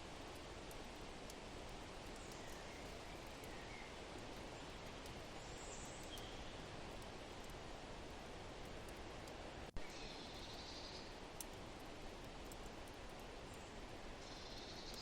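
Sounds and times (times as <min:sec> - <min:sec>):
wood fire crackling: 0:00.0 - 0:03.6, 0:06.0 - 0:09.8, 0:11.1 - 0:14.2
soft steady wind: 0:00.0 - 0:15.0
faint bird chirps: 0:09.8 - 0:11.1, 0:13.5 - 0:15.0.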